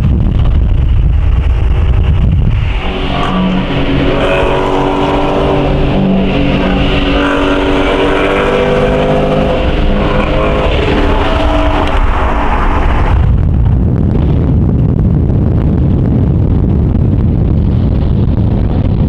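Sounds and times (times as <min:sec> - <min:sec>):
car engine at high revs: 0:00.0 - 0:14.4.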